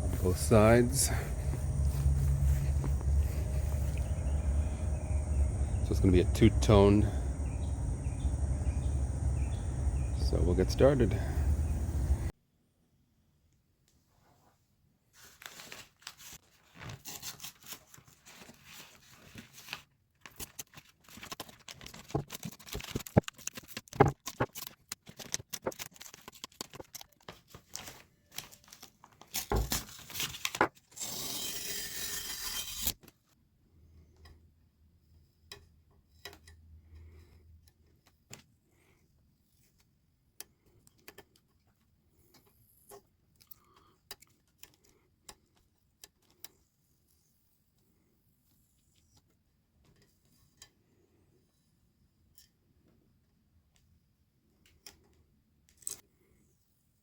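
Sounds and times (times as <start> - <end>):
crinkling and tearing: 15.3 - 31.3.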